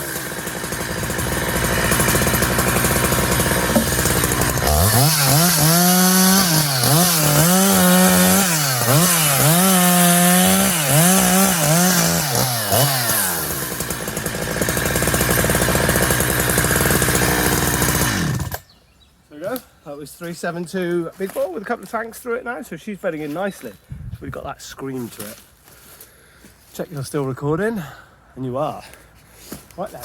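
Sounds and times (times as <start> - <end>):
chainsaw cutting wood: 0.0 - 18.8.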